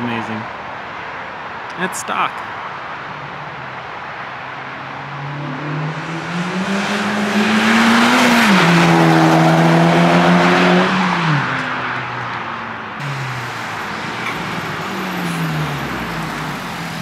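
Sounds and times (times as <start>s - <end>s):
car accelerating past: 4.6s - 17.0s.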